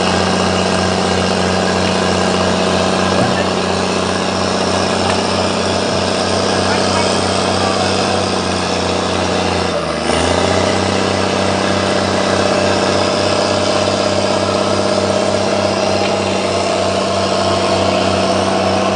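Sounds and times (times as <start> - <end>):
skidder diesel engine: 0.0 - 18.9.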